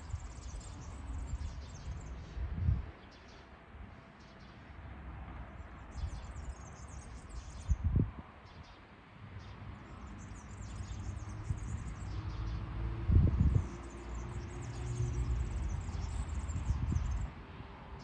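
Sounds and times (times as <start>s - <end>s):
small birds chirping: 0.0s - 3.6s, 5.9s - 7.9s, 8.5s - 12.7s, 13.4s - 17.3s.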